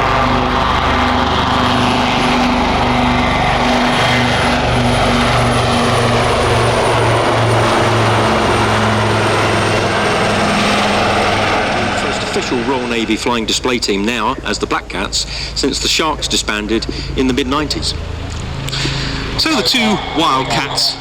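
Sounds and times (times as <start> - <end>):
helicopter rotor and engine noise: 0.0 - 21.0
whine sliding down in pitch: 18.5 - 21.0.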